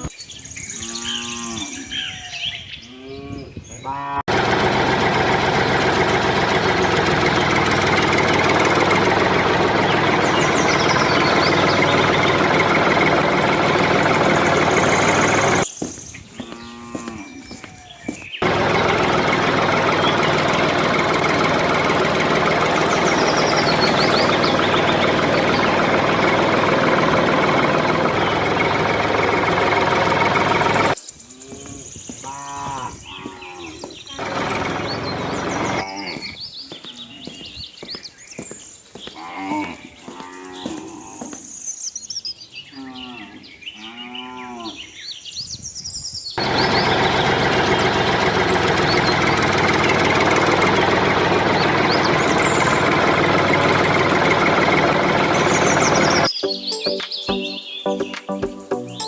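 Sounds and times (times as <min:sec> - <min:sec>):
small birds chirping: 0:00.0 - 0:04.1, 0:06.8 - 0:59.0
cattle mooing: 0:00.8 - 0:01.9, 0:02.9 - 0:04.3, 0:16.4 - 0:17.5, 0:31.4 - 0:34.6, 0:35.6 - 0:36.4, 0:39.2 - 0:41.3
loud mechanical drone: 0:04.3 - 0:15.6, 0:18.4 - 0:31.0, 0:34.1 - 0:36.0, 0:46.4 - 0:56.3.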